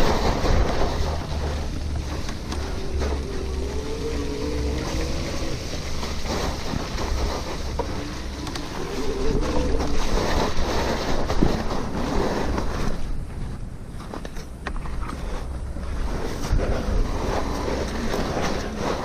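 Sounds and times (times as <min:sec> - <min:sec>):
road and tyre noise: 0:00.0 - 0:19.0
wind buffeting microphone: 0:00.0 - 0:19.0.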